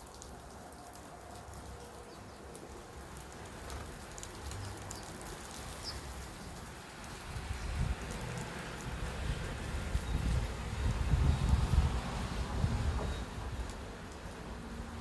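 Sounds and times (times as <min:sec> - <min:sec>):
wind rumble on microphone: 0:06.6 - 0:15.0.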